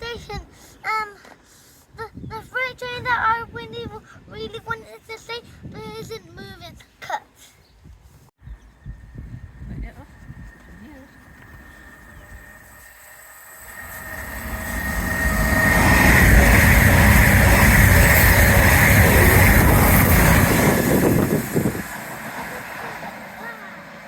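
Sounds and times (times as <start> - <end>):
train passing at speed: 8.7 - 24.0
wheel and rail noise: 9.0 - 24.0.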